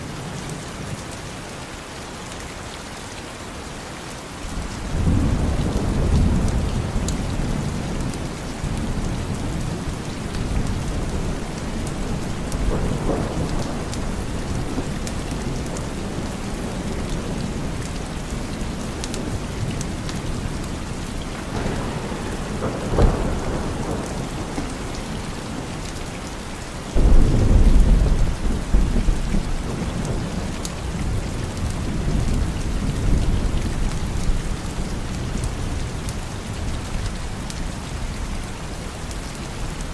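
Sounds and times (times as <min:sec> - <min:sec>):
steady rain: 0:00.0 - 0:39.9
sharp thunderclap: 0:04.5 - 0:25.9, 0:26.9 - 0:34.4
rolling thunder: 0:04.5 - 0:35.8
loud low thunder boom: 0:21.4 - 0:25.2, 0:27.0 - 0:29.8.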